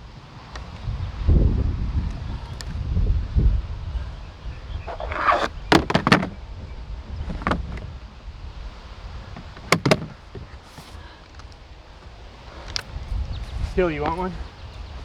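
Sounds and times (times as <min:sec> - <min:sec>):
skateboard scraping concrete: 0:04.6 - 0:06.4, 0:09.2 - 0:11.3
skateboard clacks: 0:04.9 - 0:06.6, 0:09.3 - 0:10.6.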